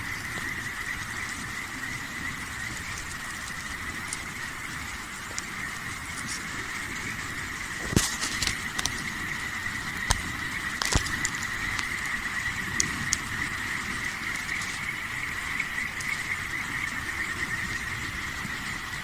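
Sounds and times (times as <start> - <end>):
campfire crackling and popping: 0.0 - 19.0
chorus of night insects: 0.0 - 19.0.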